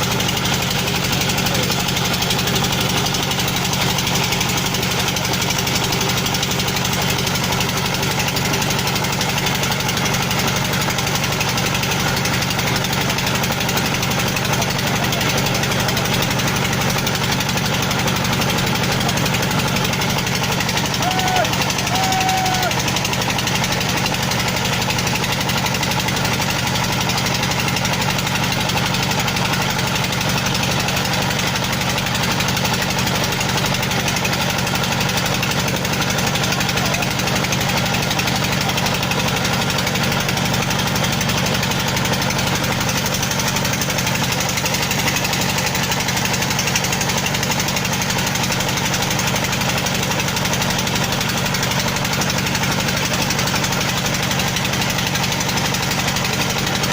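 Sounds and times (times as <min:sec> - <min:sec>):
heavy engine knocking: 0:00.0 - 0:56.9.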